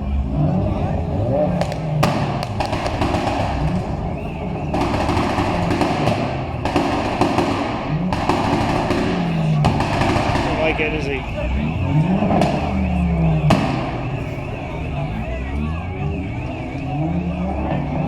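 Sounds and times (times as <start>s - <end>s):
car engine revving hard: 0.0s - 18.0s
exhaust pops and bangs: 1.4s - 15.2s.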